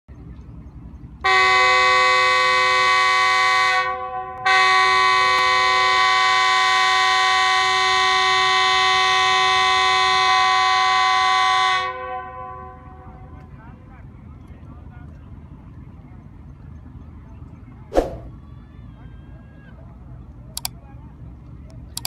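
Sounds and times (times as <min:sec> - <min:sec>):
train horn blasts: 0:01.2 - 0:13.4.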